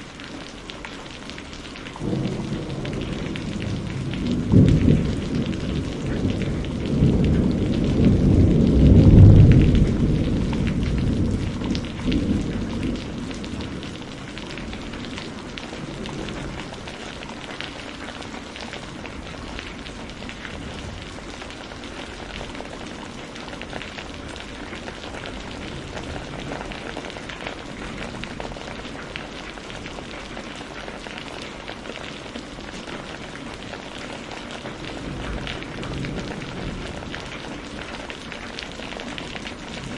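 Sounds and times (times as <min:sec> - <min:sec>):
steady rain falling: 0:00.0 - 0:39.9
deep roll of thunder: 0:02.0 - 0:17.6, 0:34.8 - 0:38.4.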